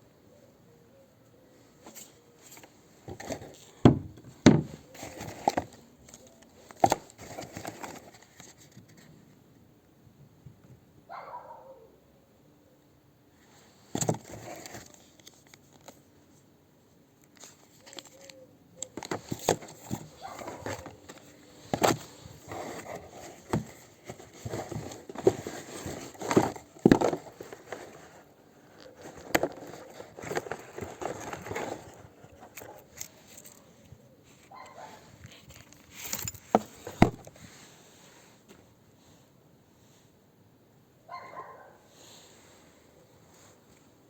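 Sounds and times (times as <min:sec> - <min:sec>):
packaging rustling and crinkling: 0:01.9 - 0:09.0, 0:13.9 - 0:16.0, 0:17.3 - 0:33.6.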